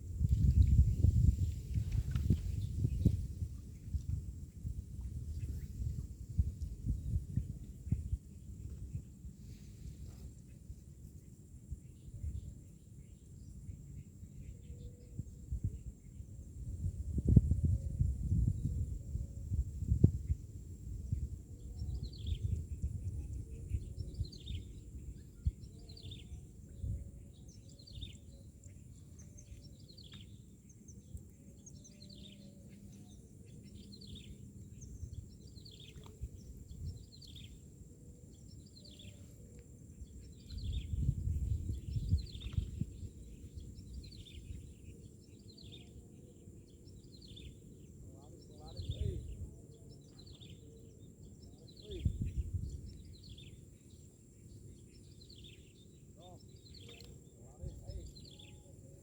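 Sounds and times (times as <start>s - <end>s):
bird chirping: 21.1s - 59.0s.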